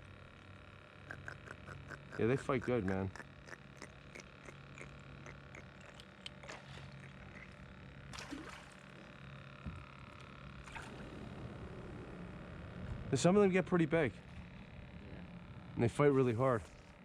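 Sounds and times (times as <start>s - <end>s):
low steady hum: 0.0s - 17.0s
rhythmic clicking or croaking: 0.8s - 6.4s.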